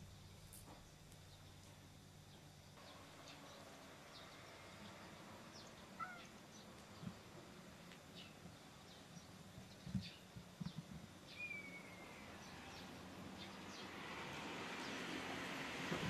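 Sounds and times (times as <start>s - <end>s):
bird chirps: 8.2s - 13.9s
falling whistled bird note: 11.3s - 12.2s.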